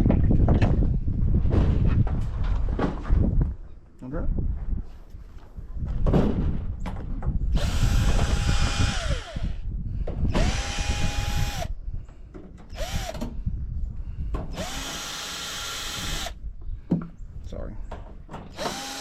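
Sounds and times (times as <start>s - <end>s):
power drill whining: 7.6s - 9.6s, 10.3s - 11.7s, 12.7s - 13.4s, 14.5s - 16.4s, 18.5s - 19.0s.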